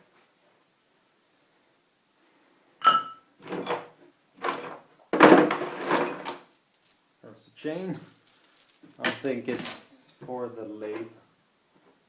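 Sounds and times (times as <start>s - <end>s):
metal clatter: 3.6s - 7.0s
metal clinking: 5.7s - 7.0s, 7.7s - 9.8s.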